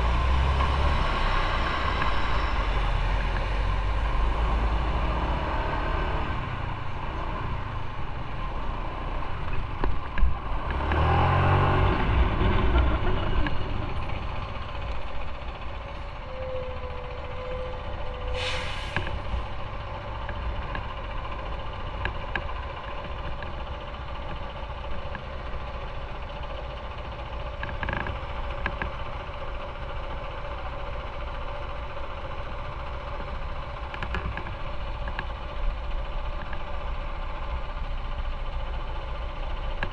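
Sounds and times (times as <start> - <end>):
engine humming at low revs: 0.0 - 39.9
road traffic: 0.0 - 39.9
air brake hiss: 18.2 - 19.4.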